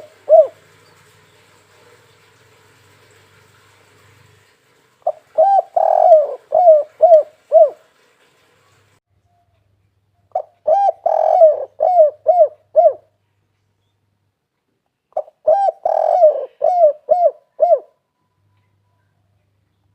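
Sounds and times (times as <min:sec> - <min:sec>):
dove cooing: 0:00.0 - 0:02.2, 0:05.0 - 0:07.9, 0:10.3 - 0:13.1, 0:15.2 - 0:18.0.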